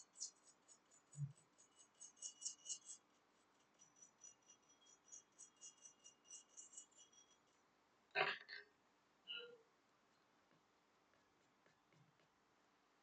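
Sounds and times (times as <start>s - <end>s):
metal tool scraping circuit board: 0.0s - 7.6s.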